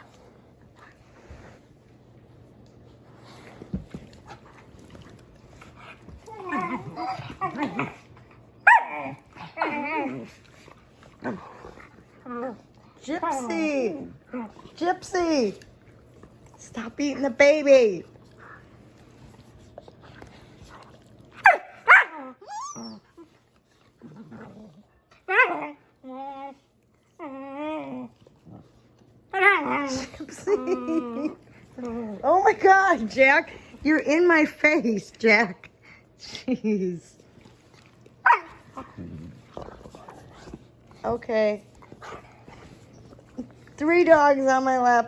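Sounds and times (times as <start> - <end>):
puppy growling: 4.0 - 15.7, 19.6 - 33.7, 37.8 - 43.9
puppy whining: 5.9 - 10.4, 21.4 - 23.5, 24.1 - 28.3
puppy whining and yelping: 21.4 - 23.4.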